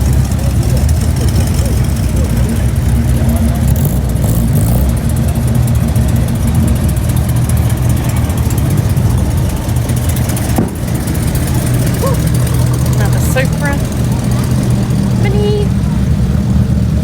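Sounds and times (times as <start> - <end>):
car engines idling: 0.0 - 17.0.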